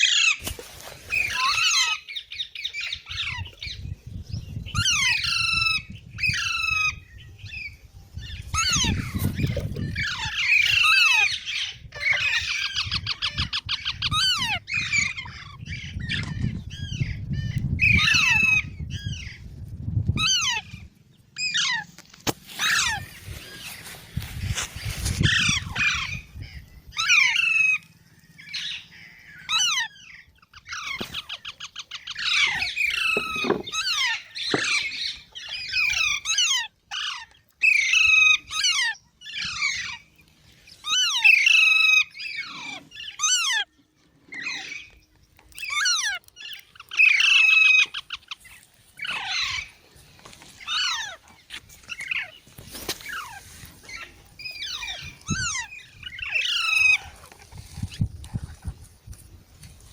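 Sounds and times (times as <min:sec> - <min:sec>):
parrot screeching: 0:21.4 - 0:21.9, 0:22.6 - 0:23.1, 0:29.5 - 0:40.0, 0:40.8 - 0:43.7, 0:45.6 - 0:48.4, 0:49.0 - 0:49.7, 0:50.6 - 0:51.2, 0:53.0 - 0:57.2.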